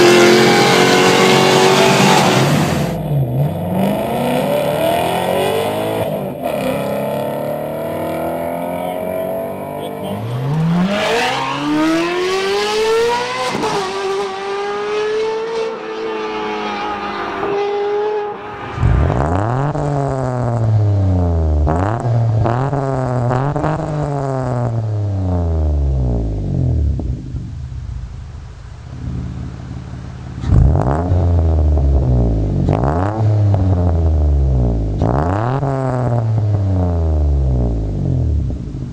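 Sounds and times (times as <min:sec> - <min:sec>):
car engine shifting gears: 0:00.0 - 0:20.9
car engine accelerating: 0:00.0 - 0:38.9.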